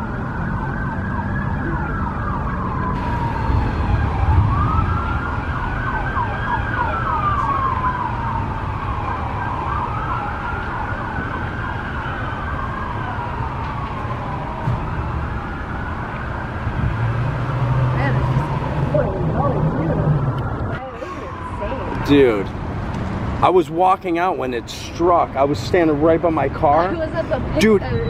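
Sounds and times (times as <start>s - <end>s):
fast sweeping siren: 0.0s - 22.5s
slow wailing siren: 0.0s - 22.6s
low rumble: 13.7s - 21.6s.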